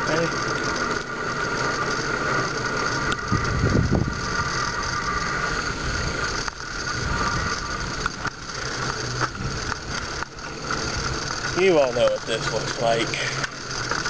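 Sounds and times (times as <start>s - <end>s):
bicycle tyre and drivetrain noise: 0.0s - 14.0s
wind rumble on microphone: 3.1s - 8.4s.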